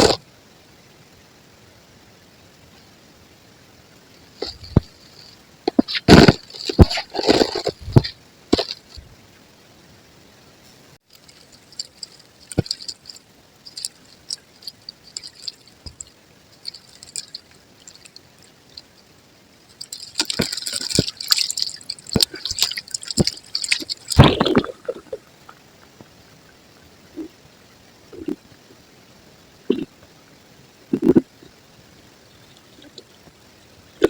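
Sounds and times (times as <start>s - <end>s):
concrete crumbling: 4.4s - 9.0s, 19.8s - 25.2s.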